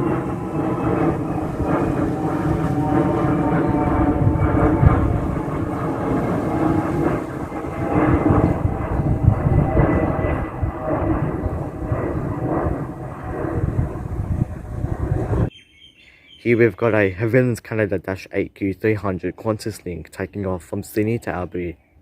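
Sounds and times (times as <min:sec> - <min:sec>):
faint jet engine whine: 0:00.0 - 0:15.5
jet airliner engine rumble: 0:00.0 - 0:15.5.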